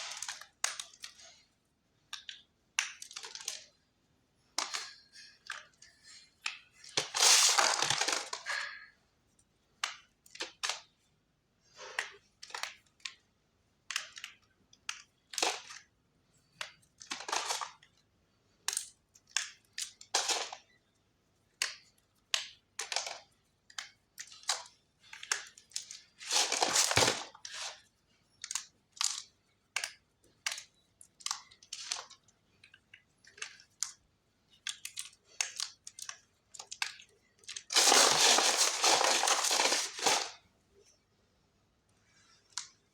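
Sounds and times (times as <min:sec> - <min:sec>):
chalk being crushed: 0:07.0 - 0:08.3, 0:26.2 - 0:27.7, 0:37.7 - 0:40.3.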